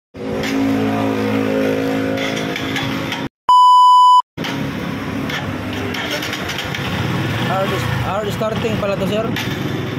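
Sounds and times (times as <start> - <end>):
electronic beep: 3.5 - 4.2.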